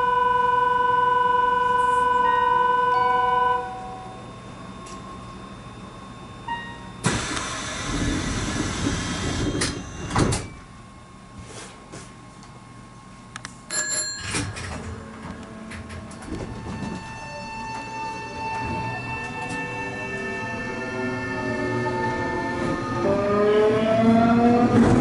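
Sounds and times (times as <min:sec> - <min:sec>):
electric train motor whine: 0:00.0 - 0:10.3, 0:14.9 - 0:25.0
train rushing and rumbling: 0:07.1 - 0:10.3, 0:14.7 - 0:25.0.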